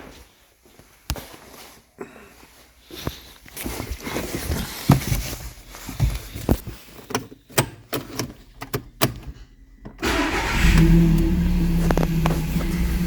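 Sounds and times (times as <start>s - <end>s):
handling and rustling: 0.0s - 10.0s
irregular clicks and knocks: 6.0s - 10.0s.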